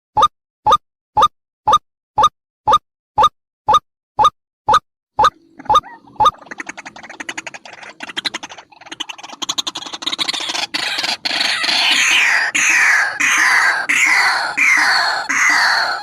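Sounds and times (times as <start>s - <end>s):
waterhen calling: 5.3s - 16.0s.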